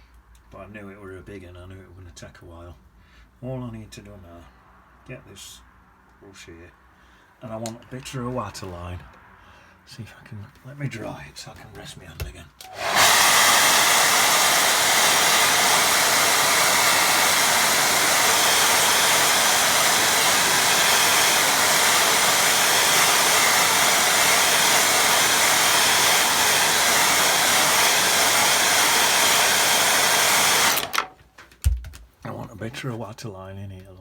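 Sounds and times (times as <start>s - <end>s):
hair dryer blowing: 12.6s - 31.2s.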